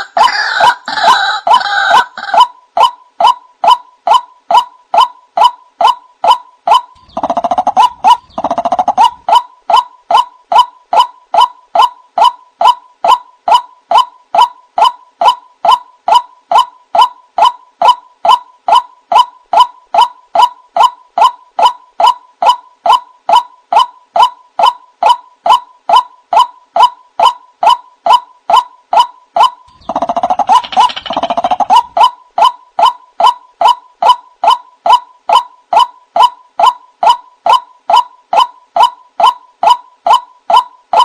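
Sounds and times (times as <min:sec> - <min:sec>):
waterhen calling: 0:06.7 - 0:10.3, 0:29.7 - 0:34.2.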